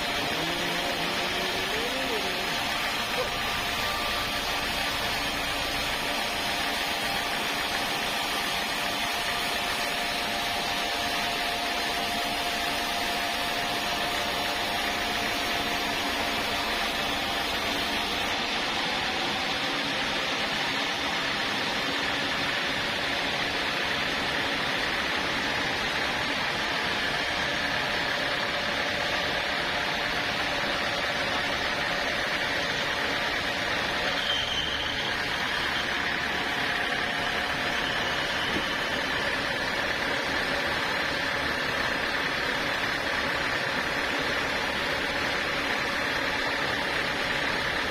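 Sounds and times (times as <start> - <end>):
sawmill saw and motor humming: 0.0 - 47.9.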